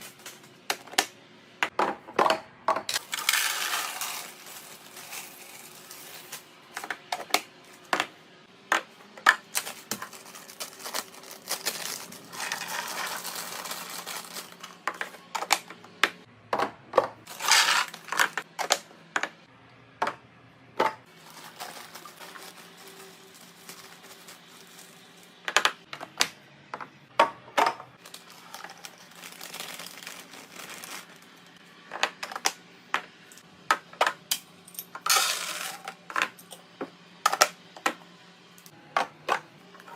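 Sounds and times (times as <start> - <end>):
containers clicking and clinking: 2.2 - 7.4, 9.2 - 15.7
packaging crinkling: 9.6 - 14.8, 21.2 - 25.2, 28.0 - 31.4.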